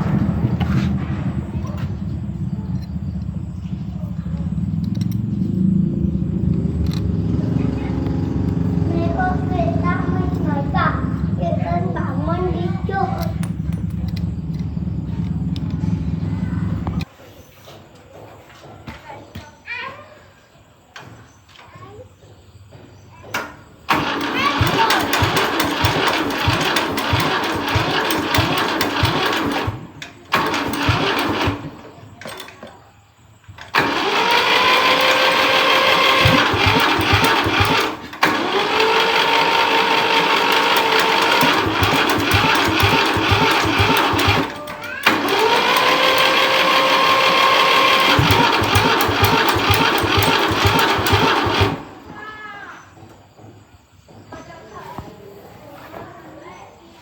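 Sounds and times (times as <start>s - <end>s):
tractor engine revving: 0.0s - 17.1s, 23.9s - 32.5s, 33.6s - 52.1s.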